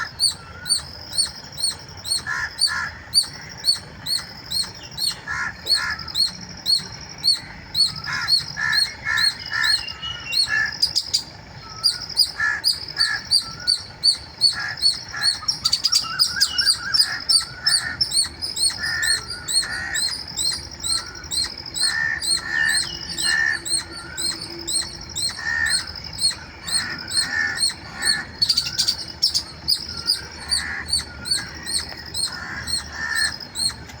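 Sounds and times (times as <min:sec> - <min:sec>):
lower squirrel chirps: 0:00.0 - 0:34.0
squirrel chirping: 0:00.0 - 0:34.0.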